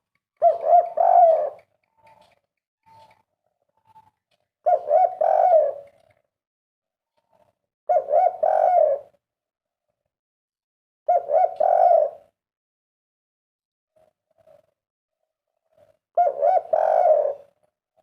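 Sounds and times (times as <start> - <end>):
dove cooing: 0.4 - 2.3, 3.9 - 6.1, 7.9 - 9.2, 11.1 - 12.4, 15.8 - 17.6.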